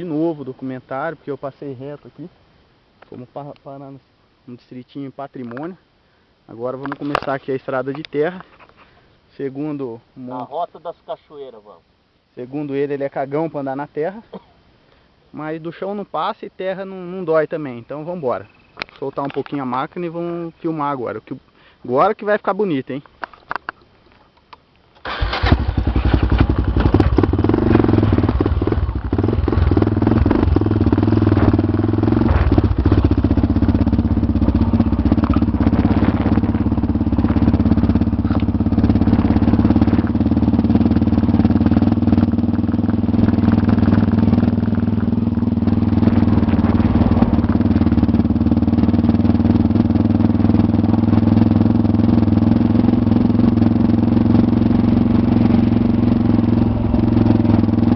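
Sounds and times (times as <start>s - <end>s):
motorcycle engine running: 25.1s - 57.9s.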